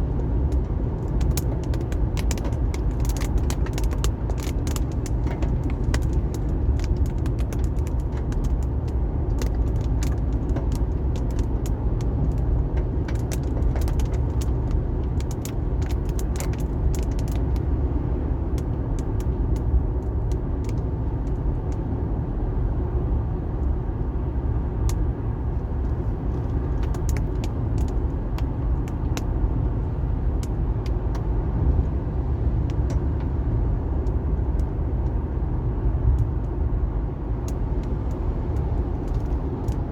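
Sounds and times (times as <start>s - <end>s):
engine and tyre road noise: 0.0s - 39.9s
raindrops ticking on car: 0.2s - 17.7s, 25.8s - 31.3s, 37.4s - 39.9s.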